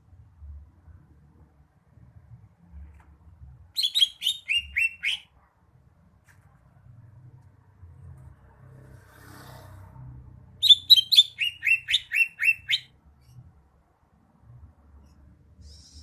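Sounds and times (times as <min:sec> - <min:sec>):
bird singing sharp downslurred notes: 0:10.6 - 0:13.3.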